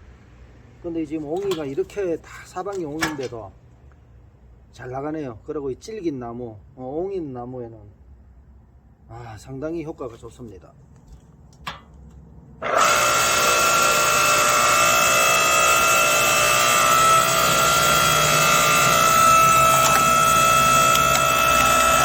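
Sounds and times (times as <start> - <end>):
hydraulic log splitter whining: 12.6 - 22.0.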